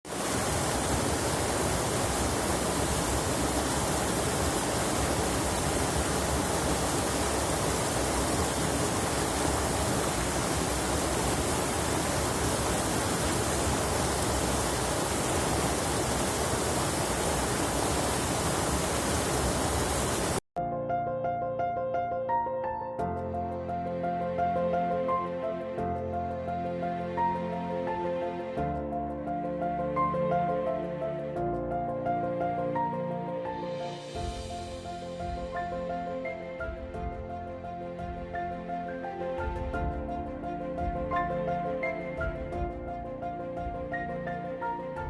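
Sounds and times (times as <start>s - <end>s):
rushing flowing water: 0.0s - 20.4s, 32.2s - 45.0s
soft music: 20.6s - 45.0s.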